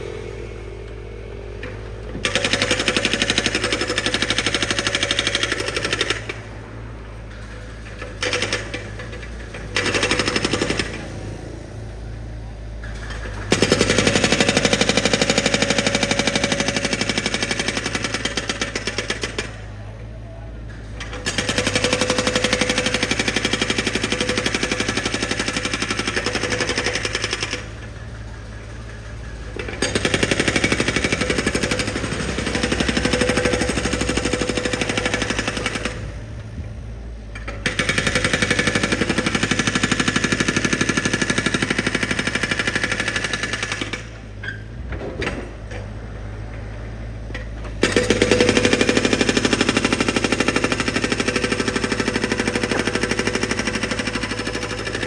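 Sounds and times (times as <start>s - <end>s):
engine humming: 0.0s - 9.8s, 26.6s - 55.0s
hydraulic drill hammering: 0.0s - 11.7s, 13.0s - 19.9s, 20.8s - 45.9s, 46.6s - 55.0s.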